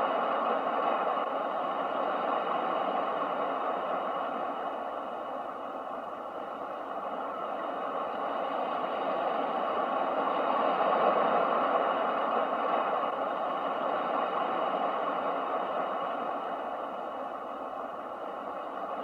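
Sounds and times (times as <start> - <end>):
ocean surf: 0.0 - 19.0.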